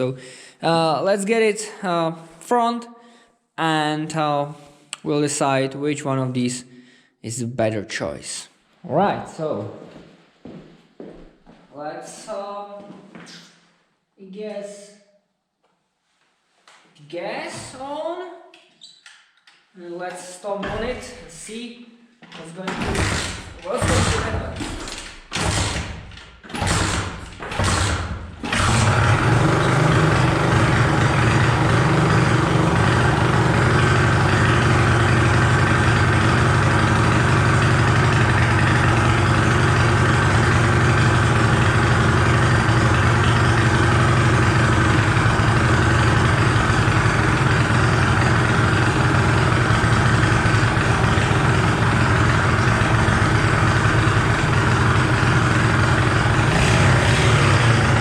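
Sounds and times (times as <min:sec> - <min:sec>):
pit bike engine kick-started: 0:22.8 - 0:58.0.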